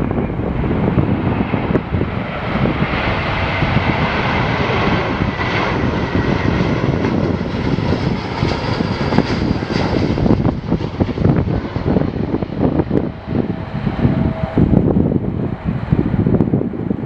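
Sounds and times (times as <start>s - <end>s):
jet engines whining: 0.0s - 17.0s
wind buffeting microphone: 0.0s - 17.0s.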